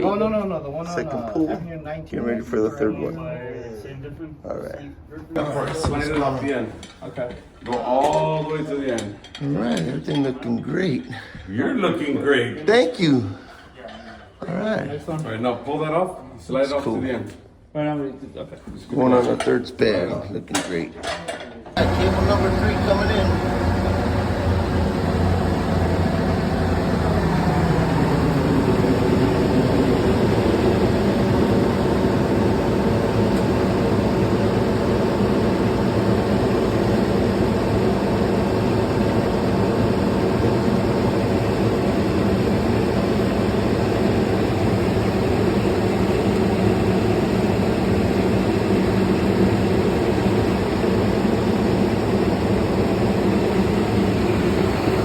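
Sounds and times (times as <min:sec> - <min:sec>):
heavy engine running under load: 0:21.8 - 0:55.0.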